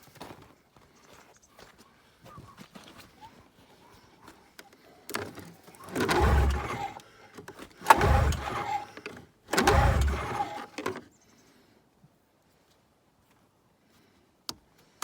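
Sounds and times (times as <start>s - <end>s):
snowmobile engine cranking: 5.1s - 11.0s.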